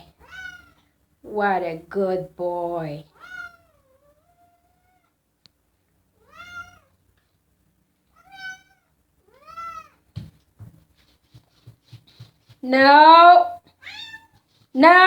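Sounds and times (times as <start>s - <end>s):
cat meowing: 0.0s - 0.8s, 3.1s - 5.1s, 6.2s - 6.9s, 8.1s - 10.0s, 13.8s - 14.4s
soft knocks: 10.1s - 12.6s.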